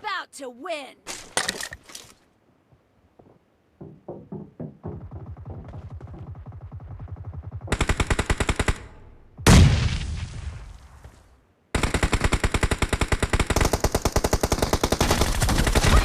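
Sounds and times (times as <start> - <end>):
video game automatic gunfire: 5.0 - 8.9, 11.8 - 16.0.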